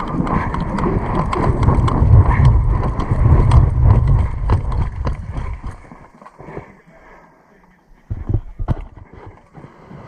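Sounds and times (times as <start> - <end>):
sharp clicks and knocks: 0.0 - 5.8
wind buffeting microphone: 0.0 - 6.0.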